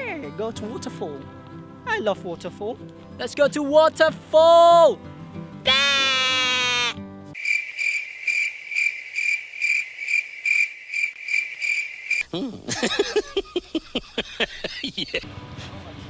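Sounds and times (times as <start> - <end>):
cricket chirping: 7.4 - 12.3.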